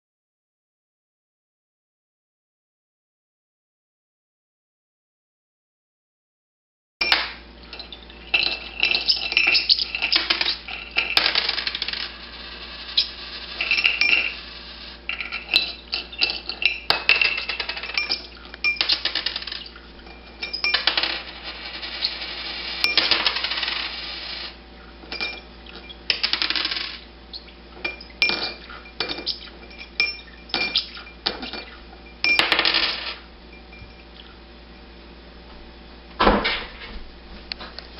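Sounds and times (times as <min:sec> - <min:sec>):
coins clattering into glass dish: 0:07.0 - 0:27.0, 0:27.8 - 0:33.2
coins hitting floor: 0:08.5 - 0:15.8, 0:16.9 - 0:19.7, 0:20.5 - 0:24.6, 0:26.1 - 0:27.0, 0:32.3 - 0:33.2.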